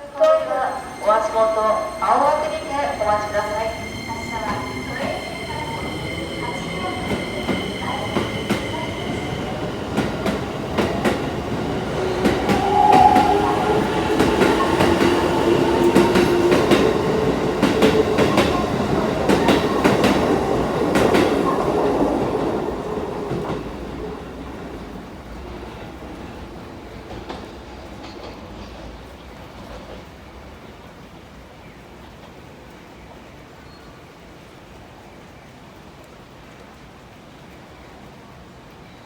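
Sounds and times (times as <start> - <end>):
train wheels clacking over rail joints: 6.8 - 22.4, 27.0 - 30.2.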